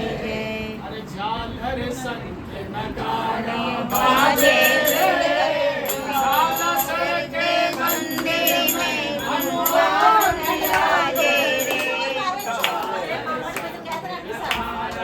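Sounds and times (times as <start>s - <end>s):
voices singing devotional song: 0.0s - 15.0s
jingling percussion: 3.9s - 13.2s.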